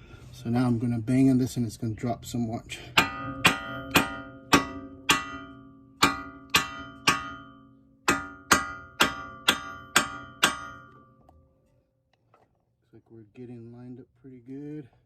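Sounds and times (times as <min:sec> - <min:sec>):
hammer clanging on steel: 0:02.9 - 0:11.4.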